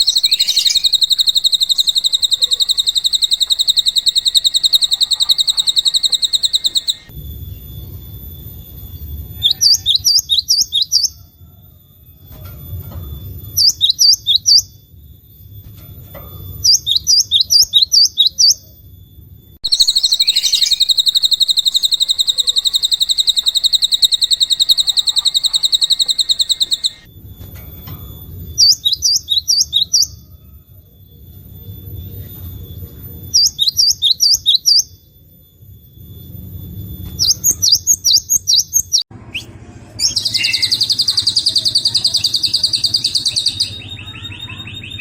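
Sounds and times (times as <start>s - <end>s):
songbird phrases: 0.0s - 7.1s, 9.4s - 11.2s, 19.7s - 27.0s, 37.2s - 45.0s
bird rapid high trill: 0.0s - 7.8s, 19.6s - 27.1s, 37.0s - 45.0s.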